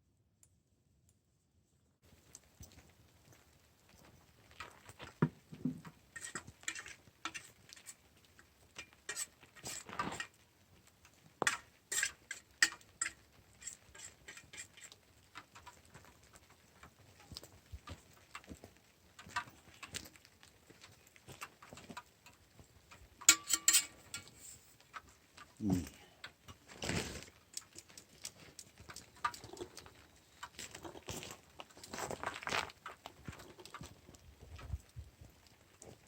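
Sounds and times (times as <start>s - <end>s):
cutlery clinking on a plate: 23.2s - 24.4s.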